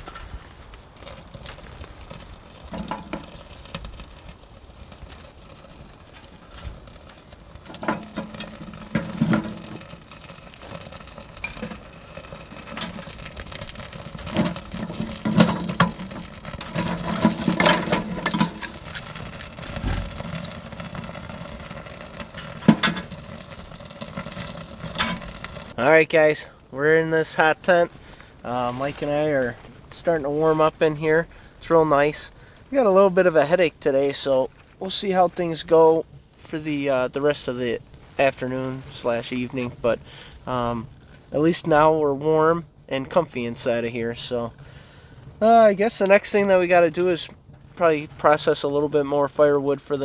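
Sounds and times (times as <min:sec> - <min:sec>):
gear rustling: 0:00.0 - 0:25.8
camping gear knocks and clicks: 0:02.7 - 0:03.5, 0:07.6 - 0:10.1, 0:14.2 - 0:20.6, 0:22.3 - 0:23.2.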